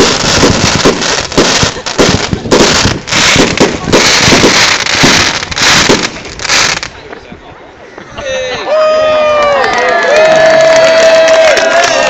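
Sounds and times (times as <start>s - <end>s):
fireworks bangs: 0.0s - 7.0s.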